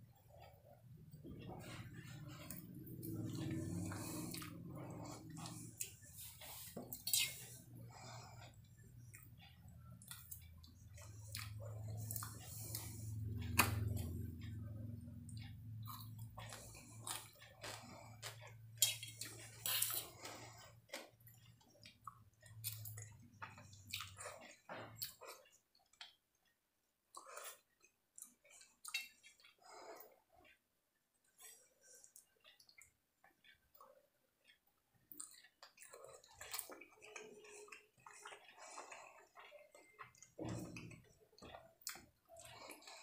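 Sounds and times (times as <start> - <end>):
low steady hum: 0.0 - 28.2
man chewing food: 0.0 - 43.0.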